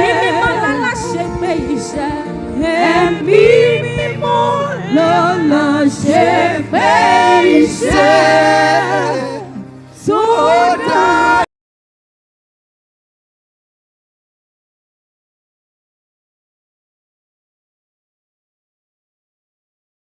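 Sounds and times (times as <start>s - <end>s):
held low notes: 0.0s - 11.4s
several voices singing praise song: 0.0s - 11.5s.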